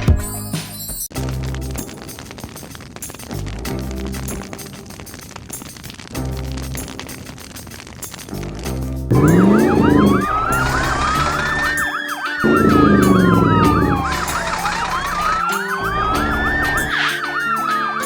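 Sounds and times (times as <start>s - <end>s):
vehicle engine revving: 9.1s - 11.6s
wailing siren: 9.1s - 18.0s
yelping siren: 9.1s - 18.0s.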